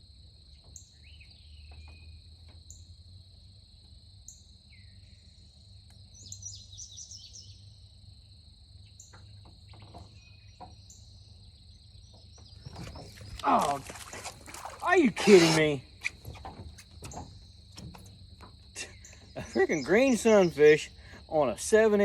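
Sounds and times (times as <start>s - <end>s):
bird song: 0.5s - 3.0s, 4.2s - 7.9s, 8.8s - 15.0s, 15.9s - 22.0s
insects trilling: 2.3s - 22.0s
bird chirps: 18.8s - 21.2s.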